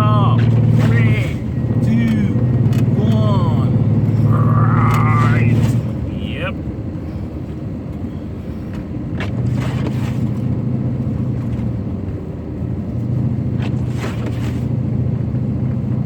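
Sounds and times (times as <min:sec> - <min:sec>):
truck engine hum: 0:00.0 - 0:16.0.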